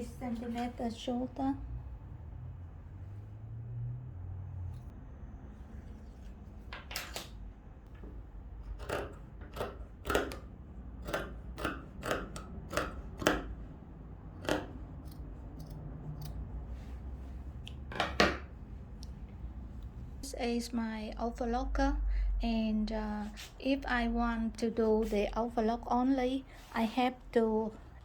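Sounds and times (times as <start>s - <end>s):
scissors cutting fabric: 8.6s - 13.6s, 14.4s - 16.4s.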